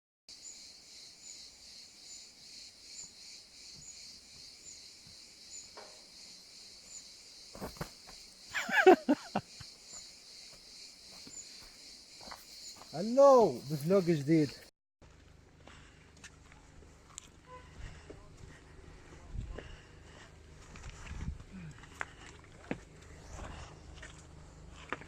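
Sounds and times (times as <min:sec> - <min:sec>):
crickets chirping: 0:00.3 - 0:14.7.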